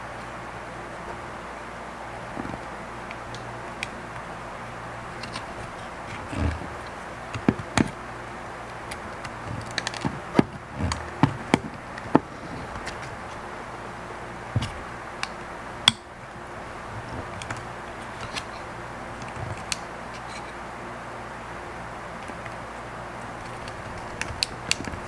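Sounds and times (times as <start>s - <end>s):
steady low hum: 0.0s - 25.0s
tools and plastic parts clicking: 5.1s - 8.0s, 8.7s - 13.4s, 17.1s - 20.5s, 23.2s - 25.0s.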